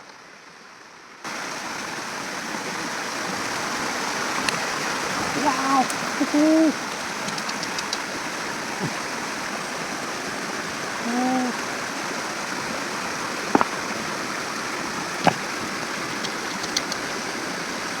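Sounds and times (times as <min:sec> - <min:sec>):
stream water flowing: 0:00.0 - 0:18.0
faint ticks: 0:07.2 - 0:08.1, 0:15.2 - 0:17.2
sharp knocks: 0:13.5 - 0:13.8.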